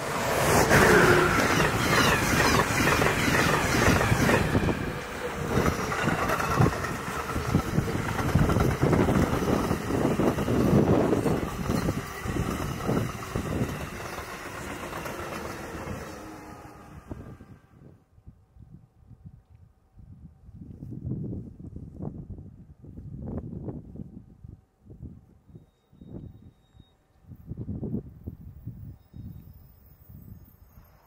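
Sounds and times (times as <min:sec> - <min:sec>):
train wheels clattering: 0:00.5 - 0:16.2.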